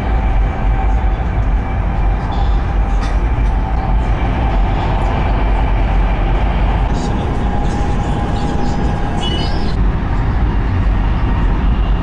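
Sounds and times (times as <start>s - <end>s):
train running low rumble: 0.0s - 12.0s.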